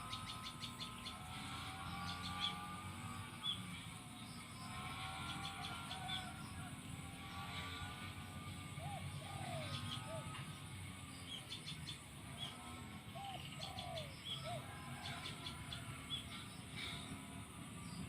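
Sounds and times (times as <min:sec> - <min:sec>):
small birds chirping: 0:00.0 - 0:18.0
dove cooing: 0:05.0 - 0:10.9, 0:11.6 - 0:17.3.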